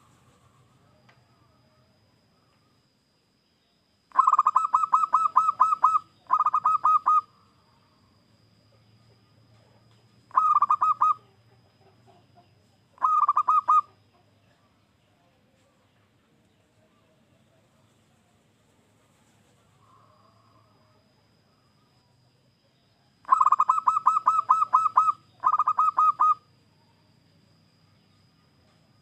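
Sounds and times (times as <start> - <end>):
dove cooing: 4.1 - 7.4, 10.3 - 11.4, 13.0 - 14.0, 23.2 - 26.5.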